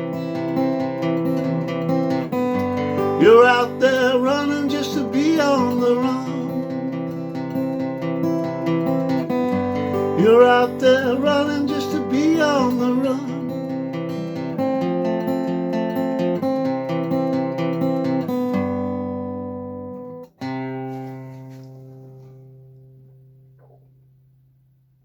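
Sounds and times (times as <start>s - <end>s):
acoustic guitar playing: 0.0s - 24.8s
person singing: 2.8s - 7.2s, 9.8s - 13.7s.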